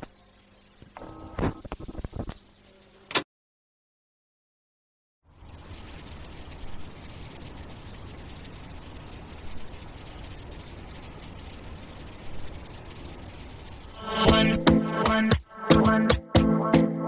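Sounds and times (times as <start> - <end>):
crickets chirring: 0.0 - 3.1, 5.3 - 16.0.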